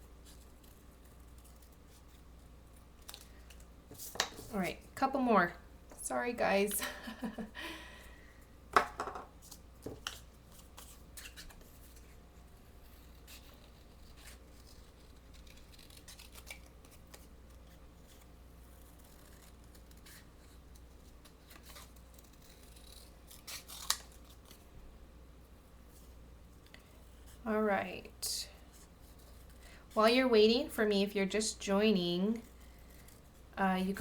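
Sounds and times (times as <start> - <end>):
scissors snipping paper: 12.9 - 24.6.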